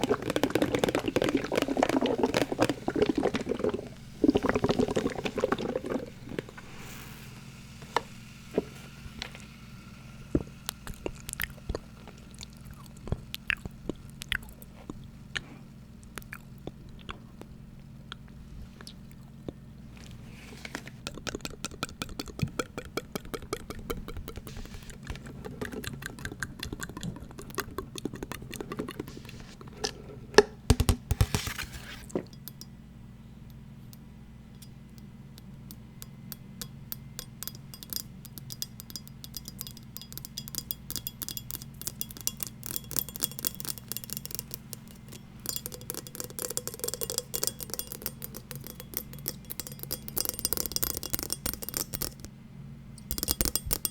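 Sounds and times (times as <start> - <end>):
low steady hum: 0.0 - 53.9
tapping on small hard objects: 36.6 - 52.3, 53.0 - 53.9.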